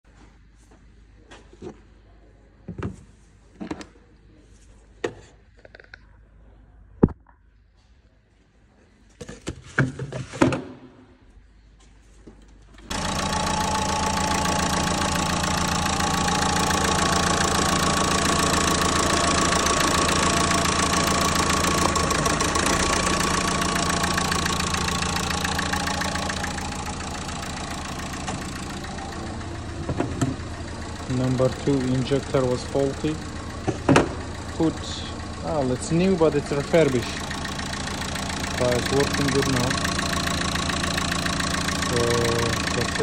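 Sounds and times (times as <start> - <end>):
car engine starting and running: 12.6 - 43.0.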